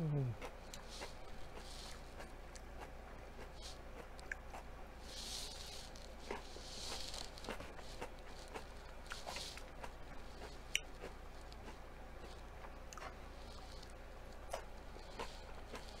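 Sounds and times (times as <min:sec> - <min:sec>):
chewing and mouth sounds: 0:00.1 - 0:16.0.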